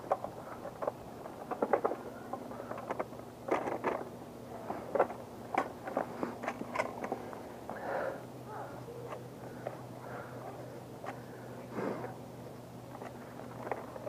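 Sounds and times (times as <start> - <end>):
small clicks and rattles: 0.0 - 7.4, 12.9 - 14.0
faint steady hum: 0.0 - 14.0.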